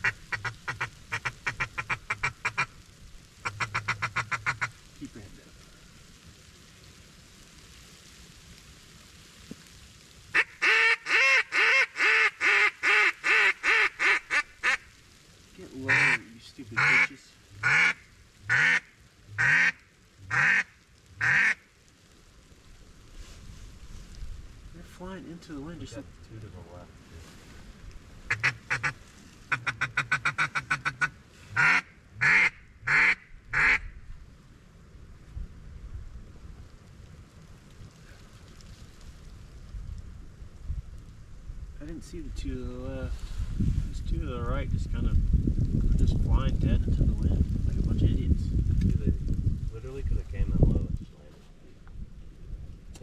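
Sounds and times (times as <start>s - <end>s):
duck call quacking: 0.0s - 2.7s, 3.4s - 4.7s, 10.4s - 14.8s, 15.9s - 16.2s, 16.8s - 21.6s, 28.3s - 33.9s.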